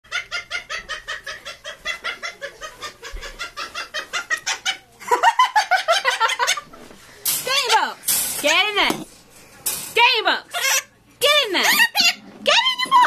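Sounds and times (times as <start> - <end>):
parrot clucking calls: 0.1 - 4.9, 10.5 - 11.0.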